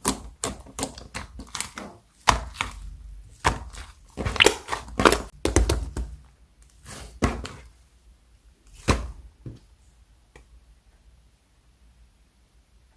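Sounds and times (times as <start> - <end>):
slime popping and crackling: 0.0 - 6.2.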